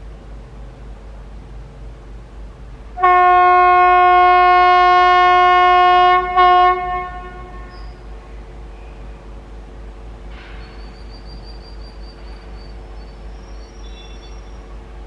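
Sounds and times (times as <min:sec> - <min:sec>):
locomotive horn blasts: 0:03.0 - 0:08.0.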